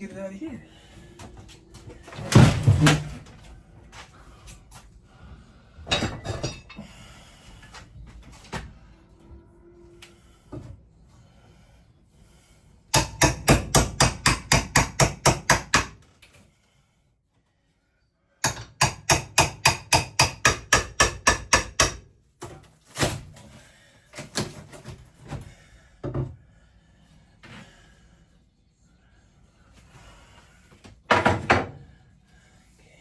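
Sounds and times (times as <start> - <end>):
rapid hammering: 13.0 - 16.0, 18.4 - 22.0.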